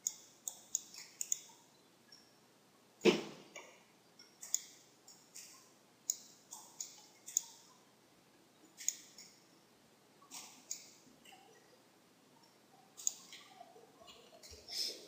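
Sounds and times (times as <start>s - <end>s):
computer mouse clicking: 0.0s - 1.6s, 3.6s - 7.7s, 8.8s - 9.4s, 13.0s - 13.6s.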